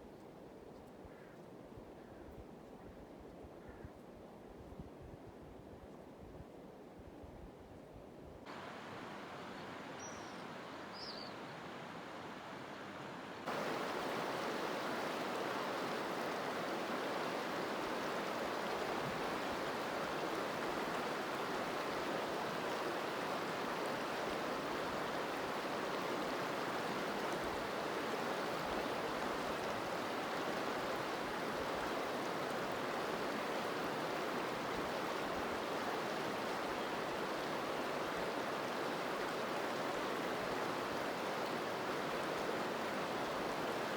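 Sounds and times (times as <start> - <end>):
stream rushing: 8.5 - 43.9.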